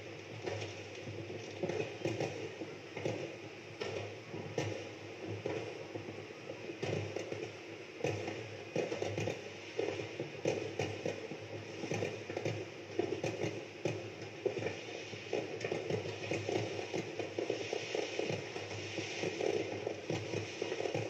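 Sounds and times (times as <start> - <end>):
fireworks bangs and crackles: 0.1 - 21.0.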